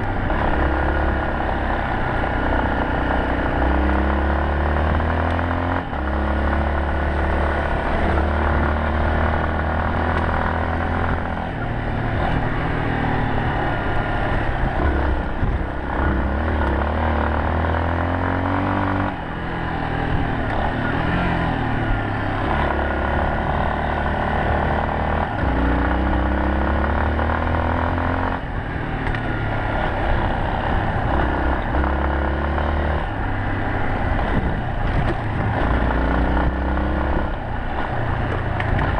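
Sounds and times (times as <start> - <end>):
motorcycle engine revving: 0.0 - 38.9
rushing wind noise: 9.6 - 18.0, 28.4 - 38.9.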